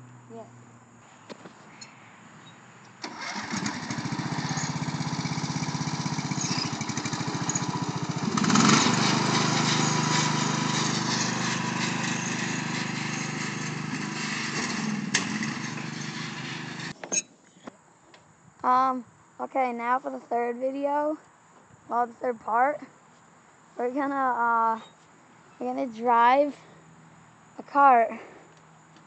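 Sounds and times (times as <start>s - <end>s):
lawn tractor engine chugging: 3.0s - 17.0s.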